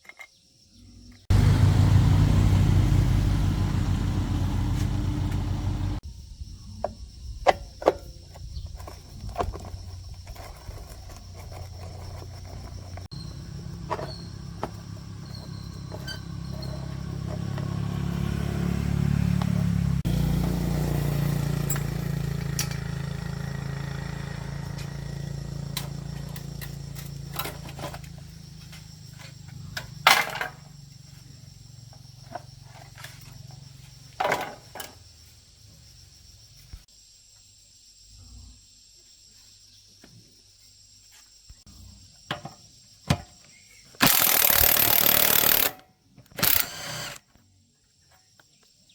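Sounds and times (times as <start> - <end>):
low motor hum: 1.3 - 6.0, 46.4 - 47.2.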